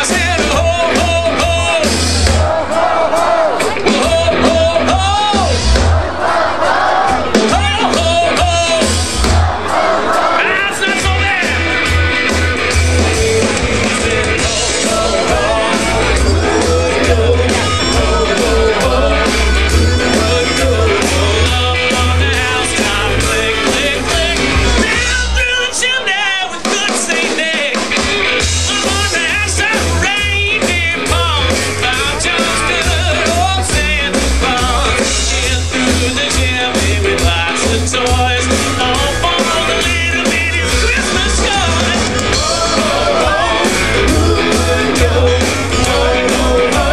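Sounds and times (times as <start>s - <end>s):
heavy bass beat: 0.0s - 6.4s, 7.0s - 25.6s, 26.6s - 46.9s
band playing rock and roll: 0.0s - 46.9s
person singing: 12.9s - 27.9s, 28.6s - 46.9s.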